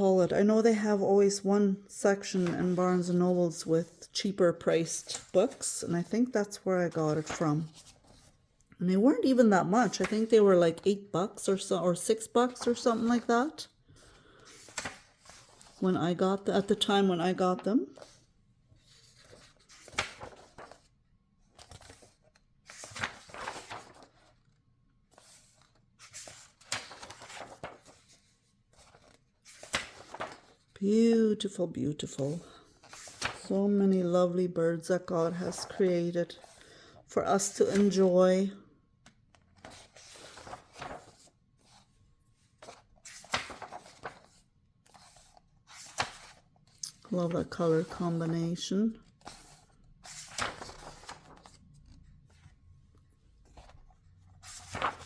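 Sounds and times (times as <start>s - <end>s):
book pages turning: 2.2s - 3.3s, 5.0s - 8.6s, 14.5s - 30.8s, 32.2s - 33.8s, 37.4s - 38.1s, 39.0s - 48.4s, 49.0s - 55.0s.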